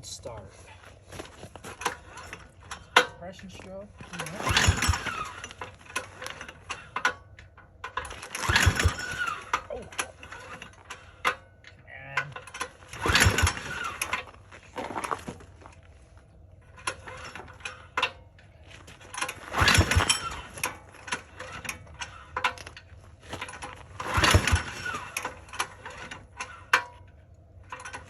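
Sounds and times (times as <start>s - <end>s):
engine cranking: 0.1s - 28.0s
handling clicks and knocks: 12.2s - 28.0s.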